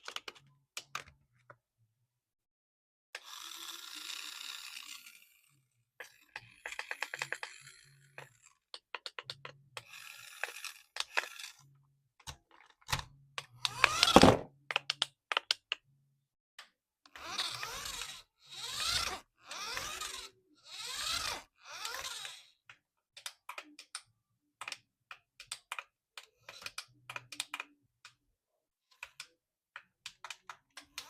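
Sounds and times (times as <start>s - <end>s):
plastic clicks and ticks: 6.0s - 7.6s, 8.2s - 11.4s, 12.2s - 15.8s, 21.8s - 28.2s, 28.9s - 31.0s.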